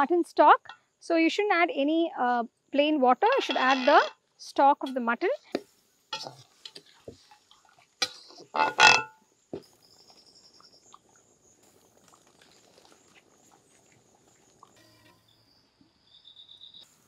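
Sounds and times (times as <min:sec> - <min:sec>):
metal clank: 0:03.3 - 0:04.1, 0:08.0 - 0:09.2
insects trilling: 0:06.1 - 0:17.0.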